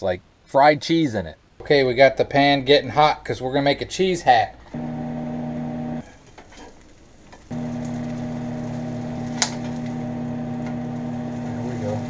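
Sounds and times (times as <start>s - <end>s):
steady hum: 4.8s - 6.0s, 7.5s - 12.0s
cheese sizzling in a pan: 6.0s - 12.0s.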